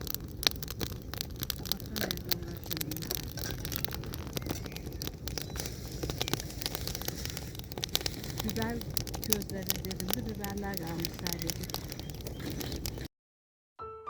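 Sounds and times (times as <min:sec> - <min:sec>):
crackling and rustling: 0:00.0 - 0:13.1
faint voices: 0:01.6 - 0:04.0, 0:08.3 - 0:12.0.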